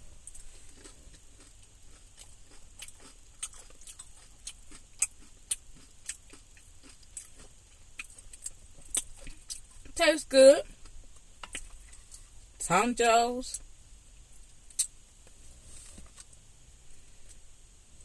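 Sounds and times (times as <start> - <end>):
chewing with mouth clicks: 0.3 - 10.0.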